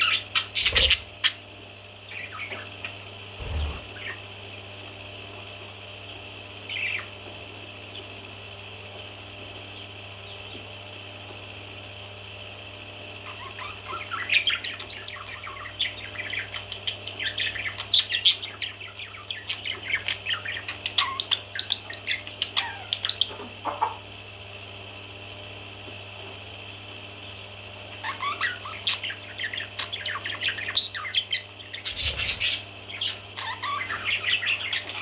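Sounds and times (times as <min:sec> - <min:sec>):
baby parrots chirping: 0:00.0 - 0:01.4, 0:03.4 - 0:04.2, 0:13.3 - 0:23.3, 0:28.0 - 0:35.0
steady background hum: 0:00.0 - 0:35.0.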